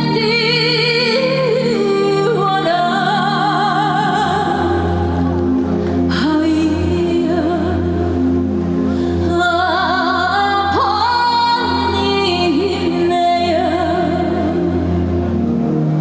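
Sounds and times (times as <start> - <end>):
woman singing folk song: 0.0 - 4.9
backing music: 0.0 - 16.0.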